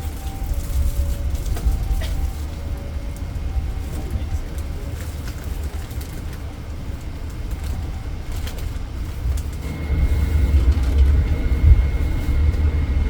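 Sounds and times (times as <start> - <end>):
train rumbling: 0.0 - 13.0
high-pitched whine: 9.6 - 13.0.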